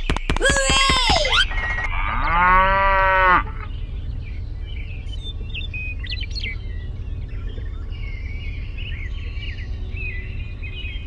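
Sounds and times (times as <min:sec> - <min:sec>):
cow mooing: 0:01.9 - 0:03.7.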